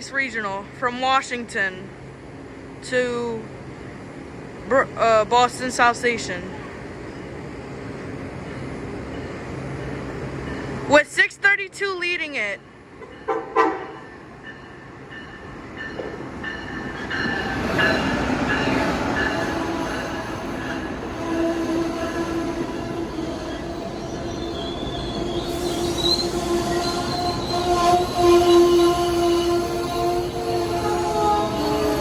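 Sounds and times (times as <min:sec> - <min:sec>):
train running noise: 0:00.0 - 0:32.0
wheels and brakes squealing: 0:20.6 - 0:32.0.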